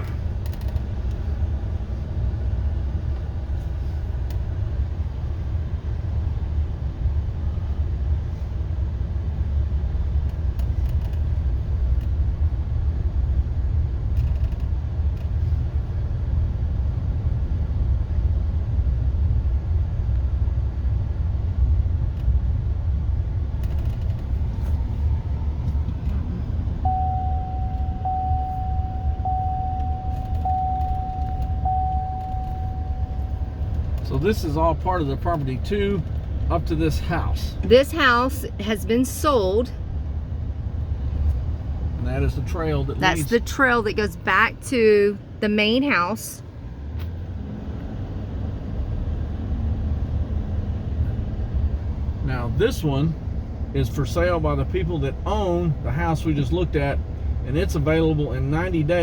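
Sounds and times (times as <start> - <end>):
vehicle driving rumble: 0.0 - 59.0
electronic beeping: 26.8 - 33.7.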